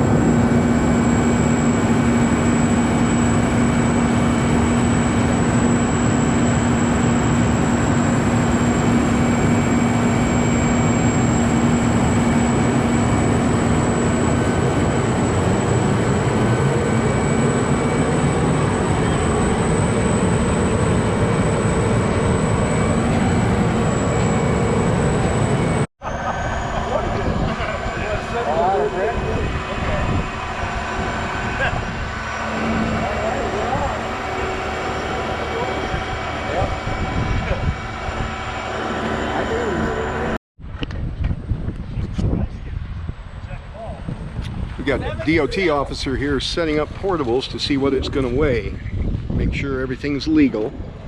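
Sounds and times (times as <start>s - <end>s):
heavy diesel machinery running: 0.0s - 40.4s
steady low hum: 0.0s - 51.0s.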